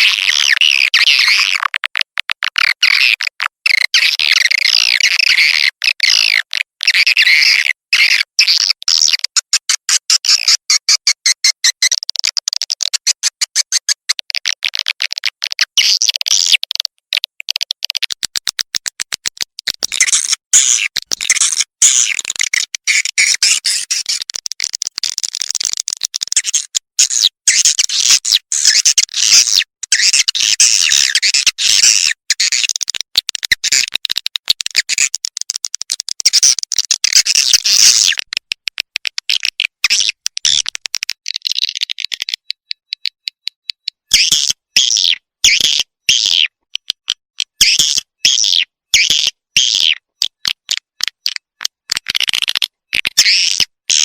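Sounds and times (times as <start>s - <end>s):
quick clicks: 11.4s - 27.4s, 32.3s - 44.6s.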